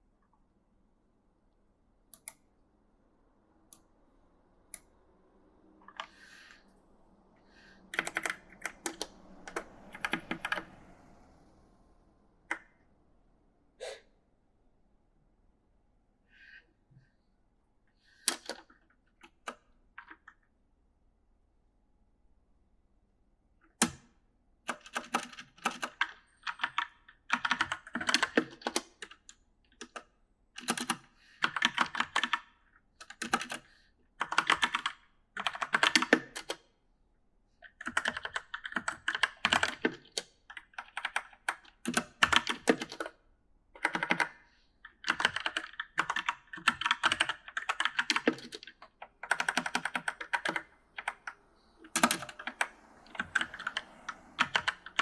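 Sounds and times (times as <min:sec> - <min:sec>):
mechanical keyboard typing: 0:07.9 - 0:10.7, 0:24.7 - 0:29.2, 0:30.6 - 0:36.6, 0:37.7 - 0:43.2, 0:43.8 - 0:55.0.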